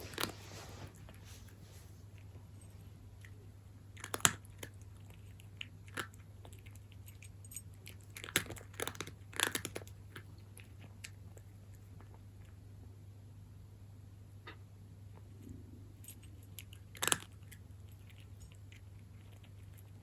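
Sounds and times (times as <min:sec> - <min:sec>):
cat crunching dry kibble: 0:00.0 - 0:12.6, 0:15.2 - 0:20.0.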